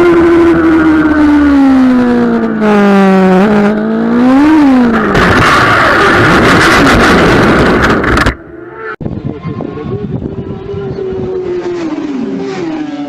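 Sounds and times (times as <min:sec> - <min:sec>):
motorcycle engine at high revs: 0:00.0 - 0:08.4
loud rushing noise: 0:04.9 - 0:09.2.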